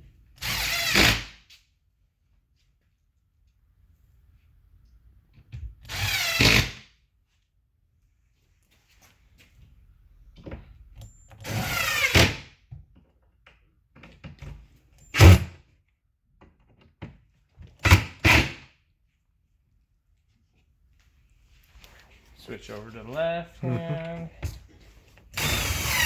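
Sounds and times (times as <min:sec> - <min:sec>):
cordless drill driving a screw: 0:00.4 - 0:01.4, 0:05.8 - 0:06.8, 0:11.4 - 0:12.4, 0:25.3 - 0:26.0.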